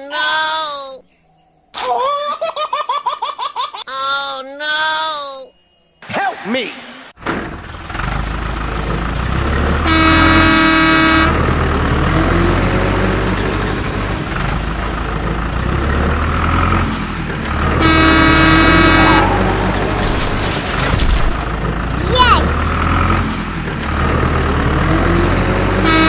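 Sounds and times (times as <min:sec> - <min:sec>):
vehicle engine rumbling: 0:07.2 - 0:26.0
horn honking: 0:09.7 - 0:13.2, 0:17.5 - 0:20.7, 0:25.6 - 0:26.0.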